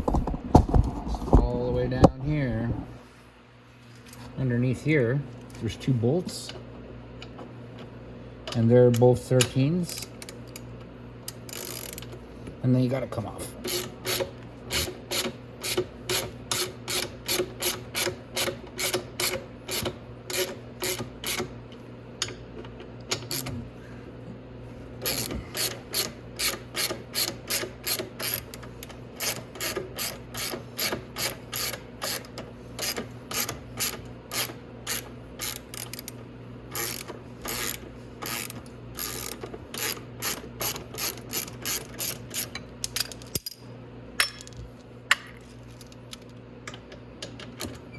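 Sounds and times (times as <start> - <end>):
hand ratchet clicking: 11.3 - 12.2, 13.6 - 21.5, 25.0 - 43.6.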